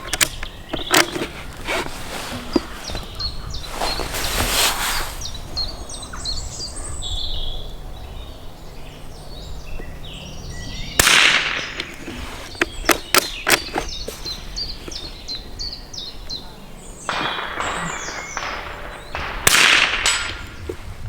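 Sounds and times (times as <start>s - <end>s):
birds chirping: 0.0s - 21.0s
rifle bolt clicking: 0.1s - 1.8s, 11.0s - 15.1s
rifle shot: 11.0s - 15.0s, 17.1s - 20.9s.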